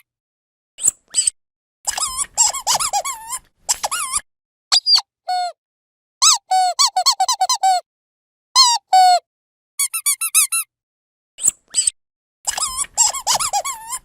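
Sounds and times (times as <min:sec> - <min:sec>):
dog squeaky toy squeaking: 0:01.9 - 0:05.5, 0:06.2 - 0:07.8, 0:08.6 - 0:09.2, 0:09.8 - 0:10.7, 0:12.5 - 0:14.0.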